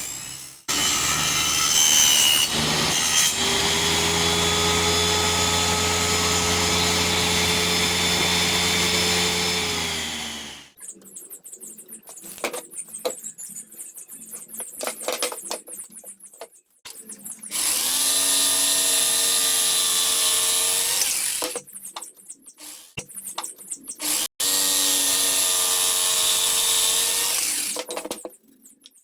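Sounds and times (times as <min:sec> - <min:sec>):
power drill whine: 0:00.0 - 0:10.8, 0:17.5 - 0:21.6, 0:24.0 - 0:27.8.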